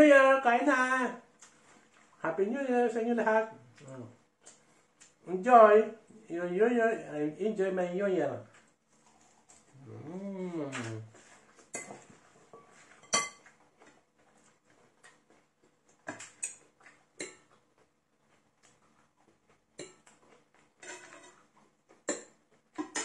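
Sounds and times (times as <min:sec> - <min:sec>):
cutlery clinking against plates: 0:11.7 - 0:13.6, 0:20.8 - 0:21.5, 0:22.1 - 0:23.0.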